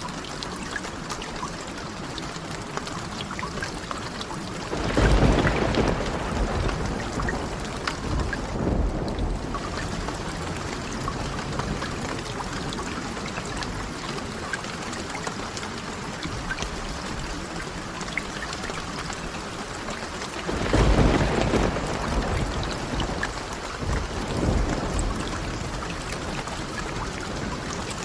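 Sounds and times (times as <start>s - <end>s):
steady rain: 0.0s - 28.0s
low rumble of thunder: 4.5s - 14.3s, 20.4s - 28.0s.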